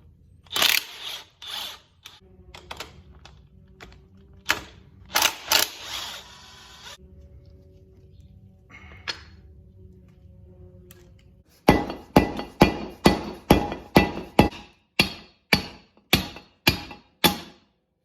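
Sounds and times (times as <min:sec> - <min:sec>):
sharp metallic impacts ringing: 0:11.6 - 0:17.6.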